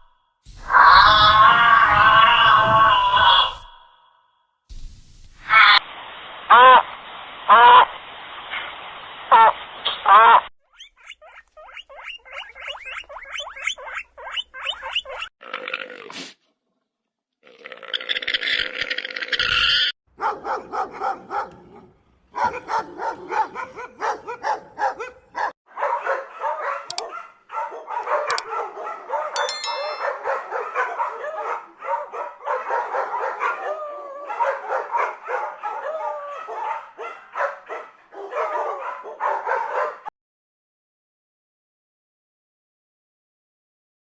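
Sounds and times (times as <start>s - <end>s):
dogs barking and yipping: 10.8s - 15.3s, 20.1s - 40.1s
dogs whining: 10.8s - 15.3s, 20.2s - 25.5s, 26.4s - 32.0s.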